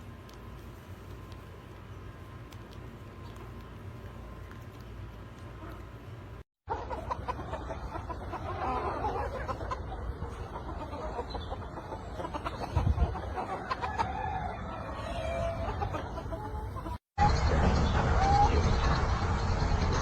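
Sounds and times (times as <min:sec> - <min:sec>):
chickens clucking: 0:06.7 - 0:17.0.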